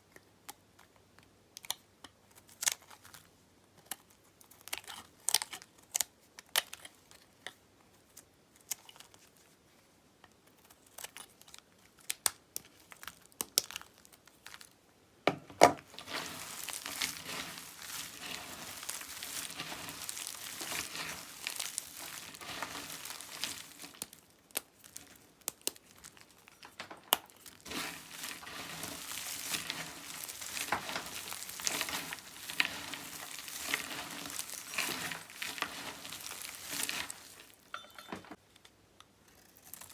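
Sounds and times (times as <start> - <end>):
soap crackling and crumbling: 0.0 - 15.0, 15.6 - 37.7, 38.5 - 39.9
soap cracking: 15.8 - 37.6.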